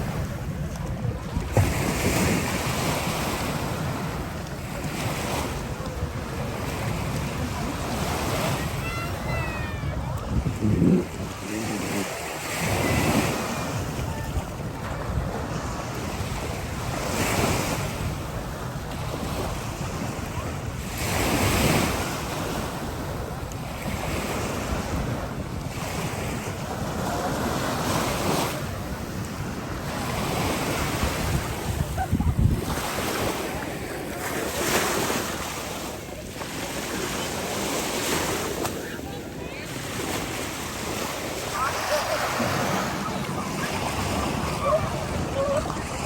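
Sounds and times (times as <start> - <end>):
waves breaking on a beach: 0.0 - 46.0
wind buffeting microphone: 5.6 - 11.6, 28.2 - 33.0, 40.7 - 46.0.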